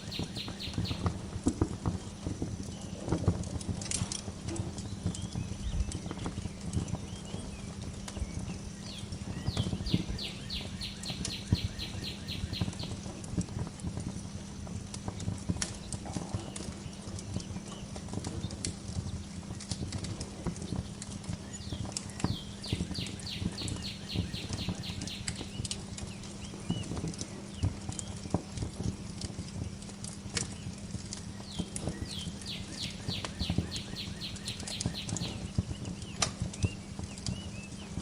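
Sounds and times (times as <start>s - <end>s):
songbird trilling: 0.0s - 1.1s, 9.4s - 12.8s, 21.6s - 25.6s, 32.0s - 35.4s
fireplace crackling: 0.0s - 38.0s.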